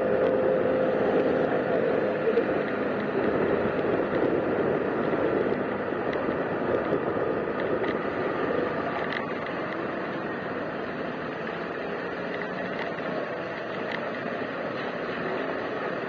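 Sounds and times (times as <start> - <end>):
road noise on wet muddy road: 0.0 - 16.0
faint ticks: 8.6 - 10.2, 11.4 - 16.0.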